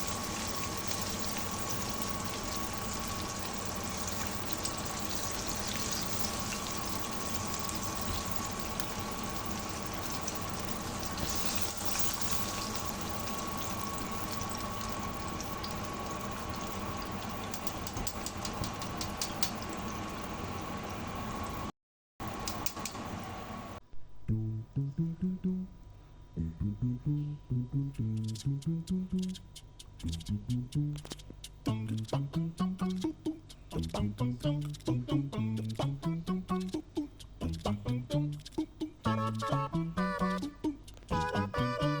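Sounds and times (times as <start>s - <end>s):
chicken deep-frying in oil: 0.0s - 23.8s.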